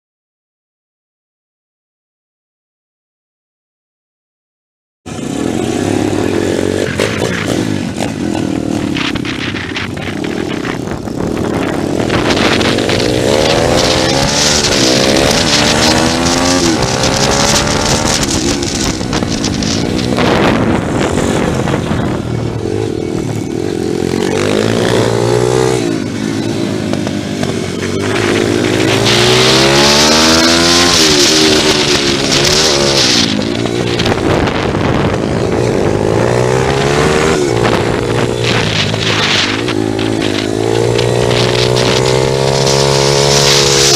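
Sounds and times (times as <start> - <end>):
motorbike engine revving: 5.1 - 43.9.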